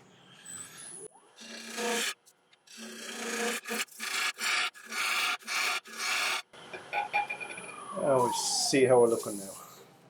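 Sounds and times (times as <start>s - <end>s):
turning tool rasping on wood: 1.4s - 6.4s.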